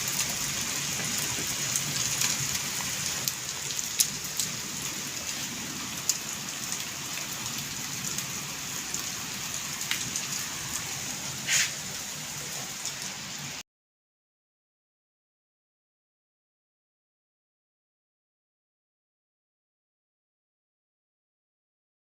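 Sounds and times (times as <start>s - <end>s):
heavy rain falling: 0.0s - 13.6s
sharp rain hits: 0.0s - 13.6s.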